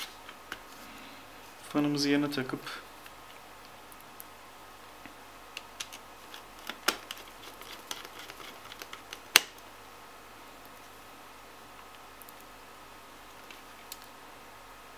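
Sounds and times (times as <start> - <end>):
sharp plastic snap: 8.7 - 9.6.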